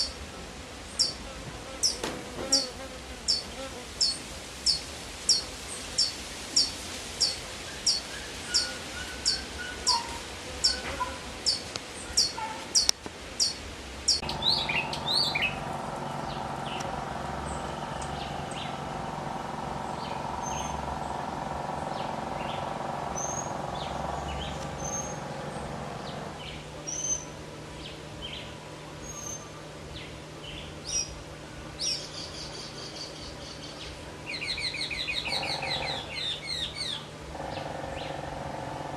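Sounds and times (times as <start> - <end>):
high bird chirps: 3.3 - 29.6, 31.8 - 38.3
steady hum: 13.2 - 38.9.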